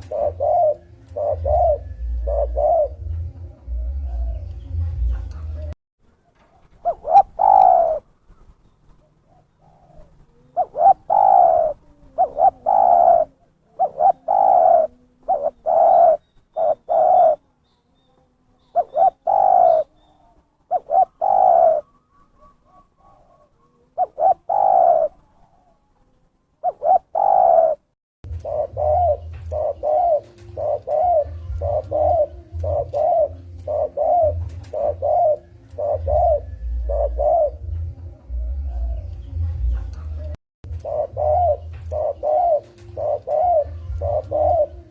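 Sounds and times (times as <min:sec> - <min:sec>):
dove cooing: 0:00.0 - 0:05.7, 0:06.5 - 0:44.9
low rumble: 0:01.7 - 0:05.8.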